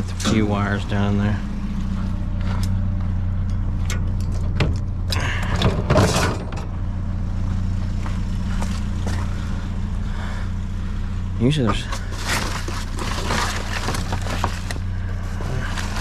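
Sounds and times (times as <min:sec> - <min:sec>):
vehicle engine idling: 0:00.0 - 0:16.0
junk clattering in a dumpster: 0:04.1 - 0:06.7, 0:11.7 - 0:16.0.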